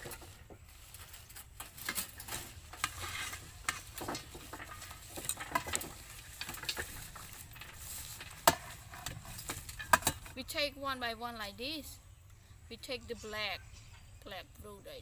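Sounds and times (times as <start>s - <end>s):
fruit stirred clicks and rustles: 0.0s - 10.4s.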